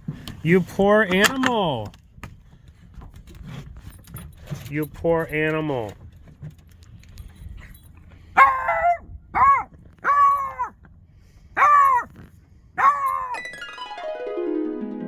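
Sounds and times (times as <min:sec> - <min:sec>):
dog barking: 0:08.4 - 0:10.7, 0:11.6 - 0:12.1, 0:12.8 - 0:13.4.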